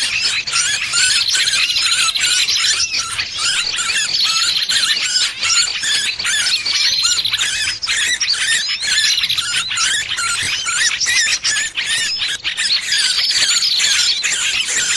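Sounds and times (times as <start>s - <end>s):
buzzy bird trill: 0.0s - 14.9s
small bird distress chirps: 0.0s - 14.9s.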